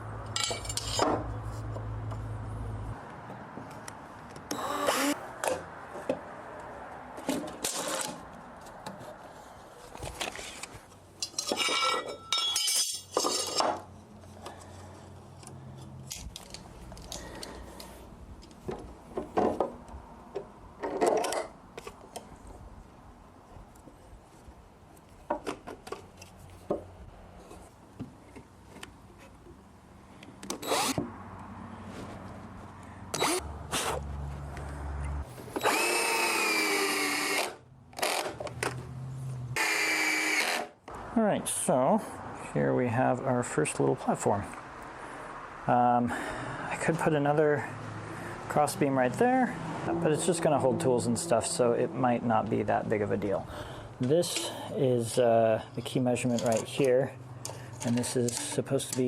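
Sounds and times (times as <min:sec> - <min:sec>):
tool on wood bursts: 0:30.5 - 0:31.0, 0:35.5 - 0:38.5, 0:39.6 - 0:40.7.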